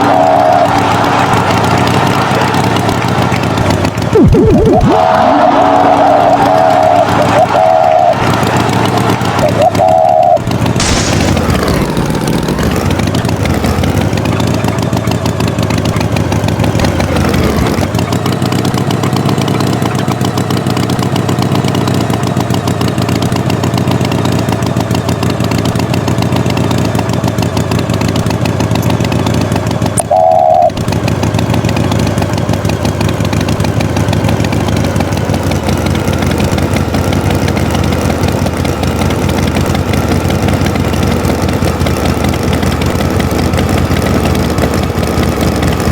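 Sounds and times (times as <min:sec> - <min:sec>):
tractor engine running: 0:00.0 - 0:45.9
short beep tone: 0:04.2 - 0:08.2, 0:30.0 - 0:30.8.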